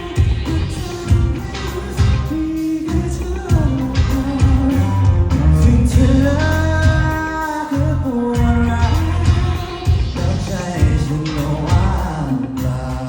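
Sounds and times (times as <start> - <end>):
live pop rock band: 0.0 - 13.0
person singing long notes: 0.0 - 13.0.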